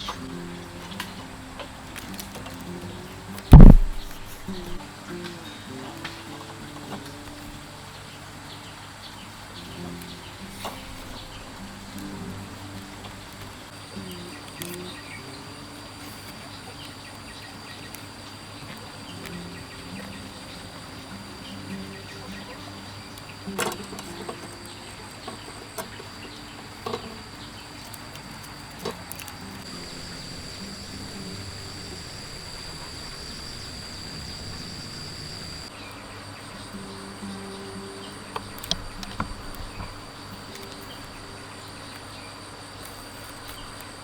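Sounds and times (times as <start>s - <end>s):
insects droning: 0.0s - 44.0s
sharp knocks: 3.5s - 4.8s.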